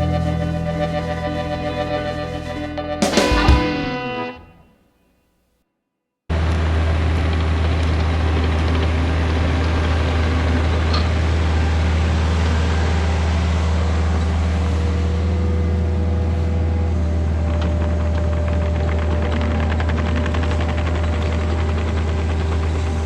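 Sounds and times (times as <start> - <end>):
excavator diesel engine running: 6.4 - 23.0.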